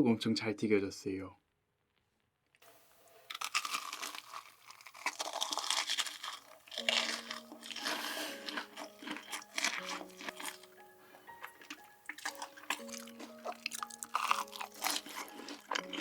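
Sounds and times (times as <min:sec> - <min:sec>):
soft background music: 0:02.7 - 0:16.0
crunchy bites and chewing: 0:03.1 - 0:16.0.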